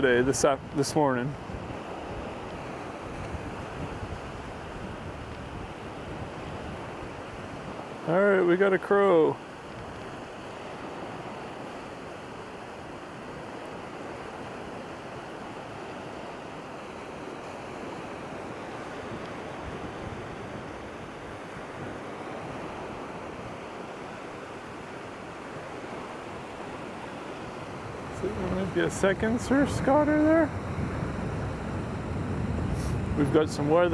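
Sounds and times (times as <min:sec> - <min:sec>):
surf along the shore: 0:00.0 - 0:33.9
wind: 0:00.0 - 0:33.9.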